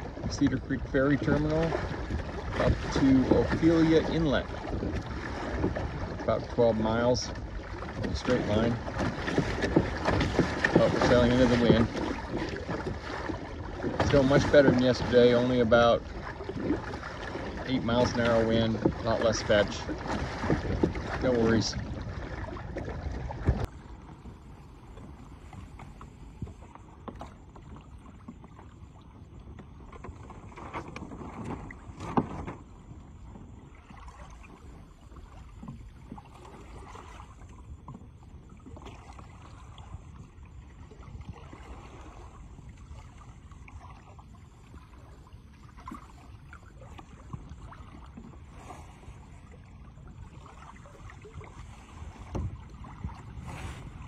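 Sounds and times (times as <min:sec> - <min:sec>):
water against hull: 0:00.0 - 0:54.0
wind: 0:00.0 - 0:54.0
knocks on boat: 0:01.2 - 0:23.7, 0:29.9 - 0:32.7, 0:52.2 - 0:53.8.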